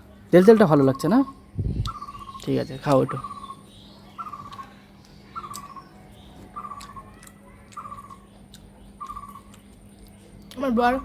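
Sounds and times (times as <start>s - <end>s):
bird calling: 0.3s - 9.9s.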